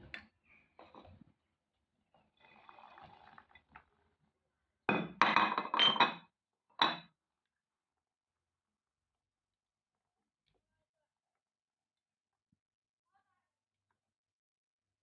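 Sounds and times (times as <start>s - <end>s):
faint pouring: 2.2s - 4.0s
glassware and dishes clinking: 4.9s - 7.1s.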